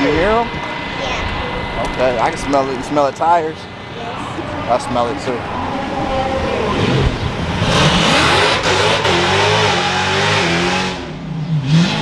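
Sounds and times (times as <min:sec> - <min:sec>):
loud rushing noise: 0:00.0 - 0:12.0
car engine revving hard: 0:06.7 - 0:12.0.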